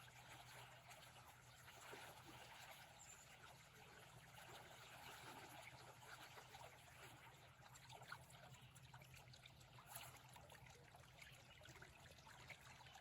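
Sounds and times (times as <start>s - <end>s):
faint trickle of river water: 0.0s - 13.0s.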